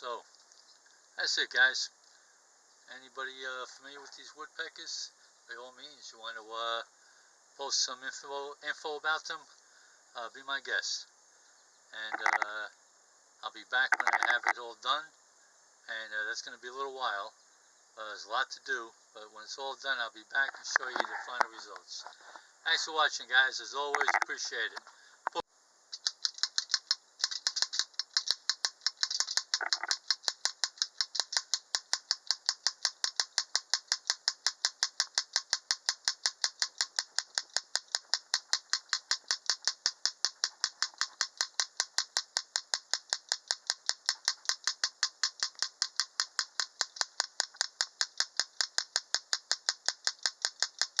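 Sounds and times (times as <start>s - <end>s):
steady clicking: 12.0s - 12.6s, 13.9s - 14.6s, 20.4s - 22.2s, 23.9s - 51.0s.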